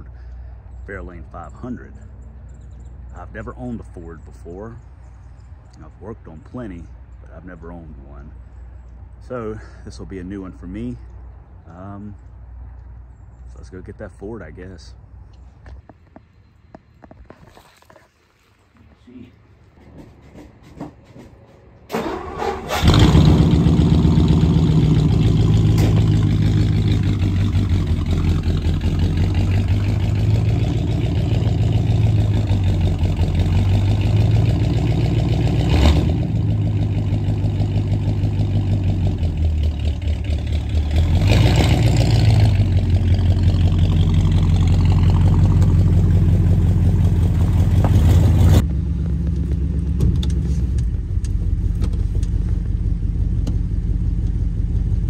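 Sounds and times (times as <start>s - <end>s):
car engine starting and running: 21.8s - 55.0s.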